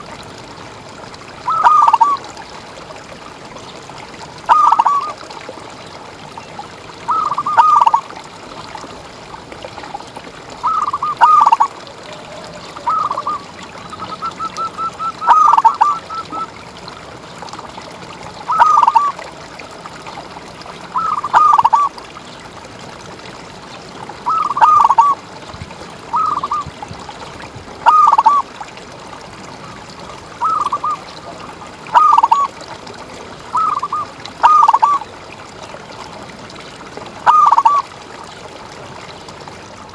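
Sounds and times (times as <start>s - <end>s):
dove cooing: 10.6s - 16.5s, 18.5s - 19.1s, 24.3s - 25.2s, 26.1s - 26.9s, 27.8s - 28.4s, 31.9s - 32.5s, 33.6s - 35.0s, 37.2s - 37.8s.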